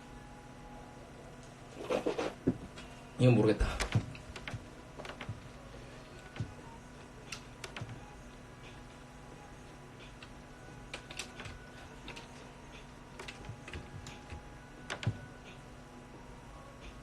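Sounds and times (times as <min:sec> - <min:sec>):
faint steady hum: 0:00.0 - 0:17.0
computer keyboard typing: 0:03.8 - 0:05.4, 0:07.3 - 0:08.0, 0:10.9 - 0:12.3, 0:13.2 - 0:15.3.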